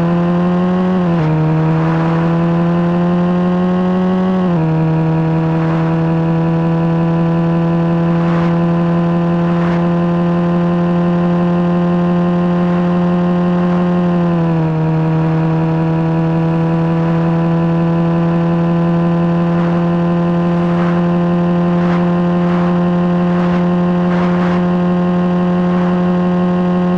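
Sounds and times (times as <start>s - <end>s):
vehicle engine exhaust drone: 0.0s - 26.9s.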